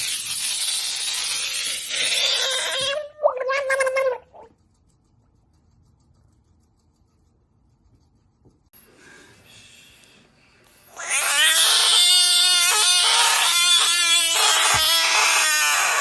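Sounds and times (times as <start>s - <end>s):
long animal cry: 10.9s - 16.0s.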